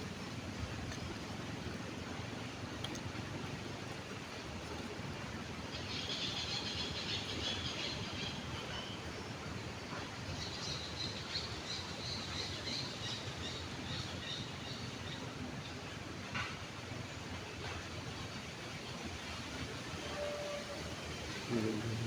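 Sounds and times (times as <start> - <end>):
stream water flowing: 0.0 - 22.0
birds chirping: 21.0 - 22.0.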